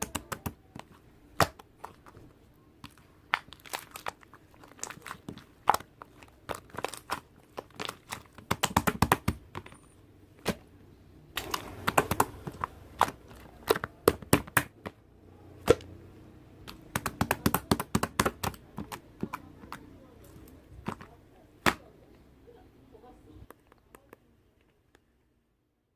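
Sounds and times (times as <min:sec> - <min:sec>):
slime clicking and popping: 0:00.0 - 0:02.0, 0:02.8 - 0:09.7, 0:11.4 - 0:14.9, 0:16.6 - 0:19.8.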